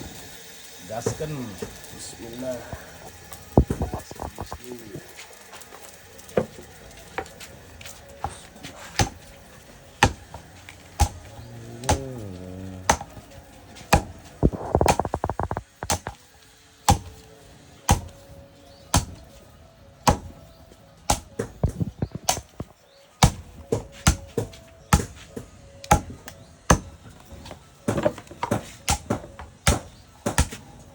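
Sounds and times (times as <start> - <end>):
chopping strikes on wood: 8.2 - 9.3, 10.0 - 10.4, 11.0 - 12.0, 12.9 - 13.3, 13.9 - 16.2, 16.9 - 17.2, 17.9 - 18.2, 18.9 - 19.3, 20.0 - 20.4, 21.1 - 30.7.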